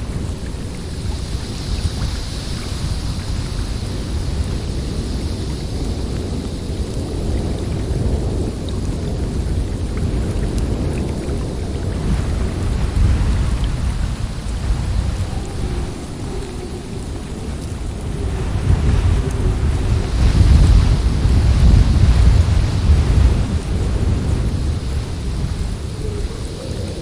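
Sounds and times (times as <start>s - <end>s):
snowstorm wind rumbling rush: 0.0s - 27.0s.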